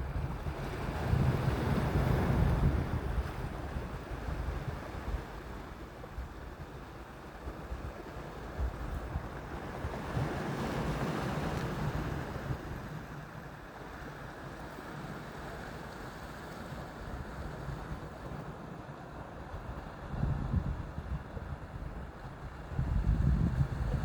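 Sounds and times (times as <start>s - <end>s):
wind rumbling on microphone: 0.0s - 13.2s, 19.4s - 24.0s
waves washing ashore: 0.0s - 24.0s.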